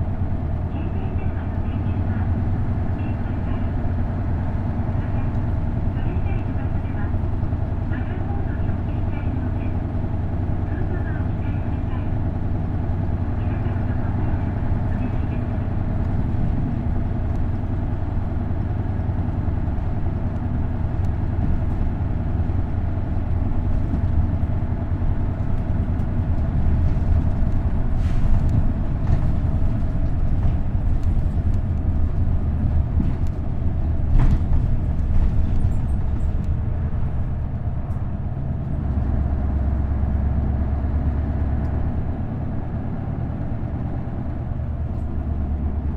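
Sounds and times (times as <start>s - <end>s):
bus engine humming: 0.0s - 45.9s.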